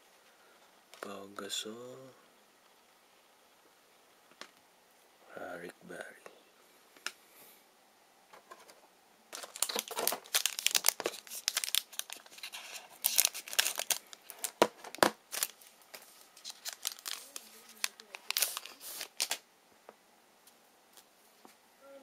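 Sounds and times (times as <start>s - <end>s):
plastic wrapper tearing and crinkling: 9.3s - 19.4s.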